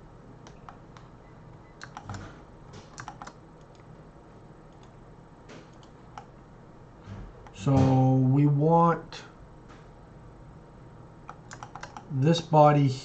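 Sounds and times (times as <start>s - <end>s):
computer keyboard keys clicking: 1.8s - 3.9s, 5.7s - 6.3s, 11.3s - 12.1s.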